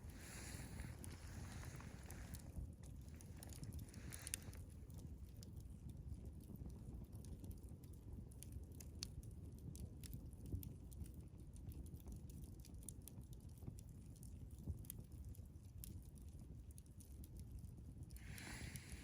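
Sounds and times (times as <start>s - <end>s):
faint low rumble: 0.0s - 6.0s
campfire crackling: 0.0s - 19.0s.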